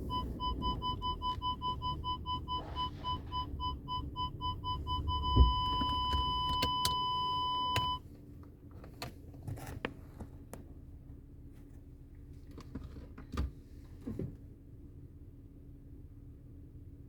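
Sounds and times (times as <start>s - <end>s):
parking sensor beeping: 0.0s - 8.0s.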